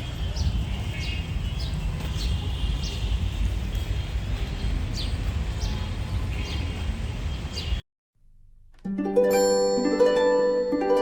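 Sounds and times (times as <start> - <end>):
birds chirping: 0.0 - 7.8.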